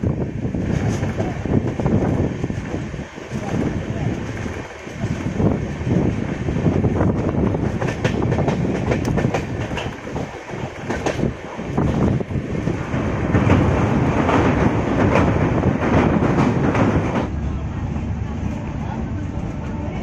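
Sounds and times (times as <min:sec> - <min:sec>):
train coach rumbling: 0:00.0 - 0:20.0.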